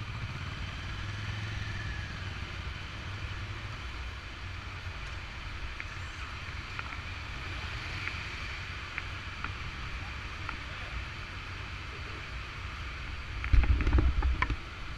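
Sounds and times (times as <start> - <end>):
wind noise: 13.1 - 14.9.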